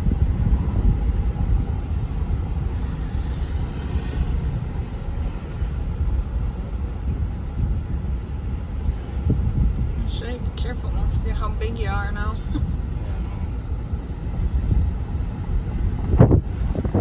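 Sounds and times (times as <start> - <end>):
large vehicle engine and road rumble: 0.0 - 17.0.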